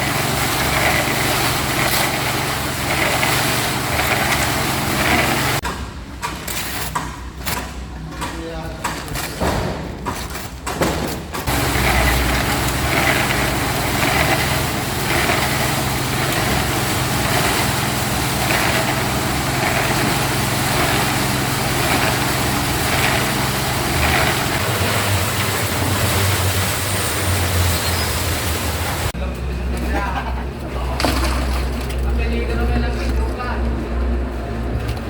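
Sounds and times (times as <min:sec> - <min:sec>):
small engine running: 0:00.0 - 0:05.6, 0:11.4 - 0:29.1.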